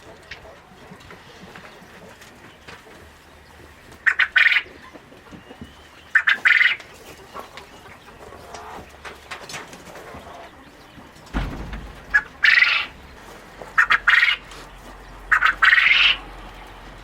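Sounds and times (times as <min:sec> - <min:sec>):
farm bird calling harshly: 0:01.0 - 0:17.0.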